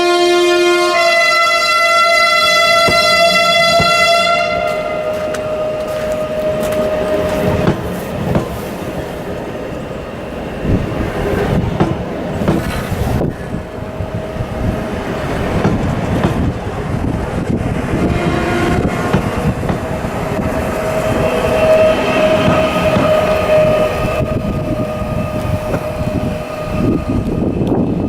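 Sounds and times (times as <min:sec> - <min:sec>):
steady high-pitched tone: 0:00.0 - 0:08.2, 0:19.8 - 0:28.0
train wheels clacking over rail joints: 0:02.6 - 0:28.0.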